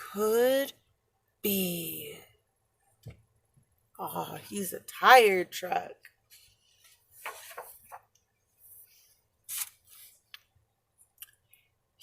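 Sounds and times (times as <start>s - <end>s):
book pages rustling: 6.3s - 10.4s.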